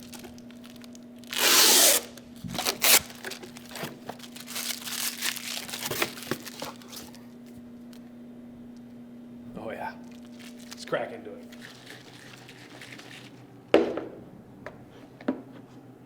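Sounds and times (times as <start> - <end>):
packing tape ripped off box: 0.0 - 7.2, 10.2 - 10.9
cardboard and packaging rustling: 0.0 - 7.4, 10.1 - 13.4.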